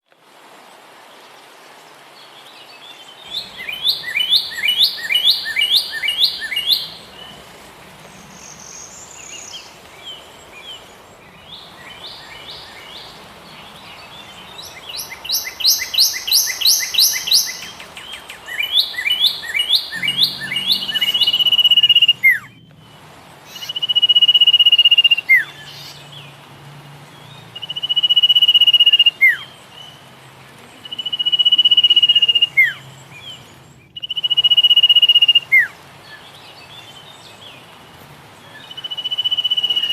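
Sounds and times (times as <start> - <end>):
background hiss: 0.1 - 39.9
bird chirps: 3.2 - 26.2, 38.5 - 39.9
bird whistles: 3.3 - 7.3, 14.8 - 22.5, 23.5 - 25.9, 34.0 - 35.7, 38.7 - 39.9.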